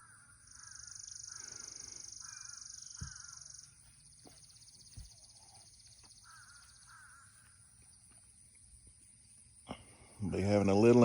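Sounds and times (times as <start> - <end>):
crows cawing: 0.0 - 3.7, 6.1 - 7.6.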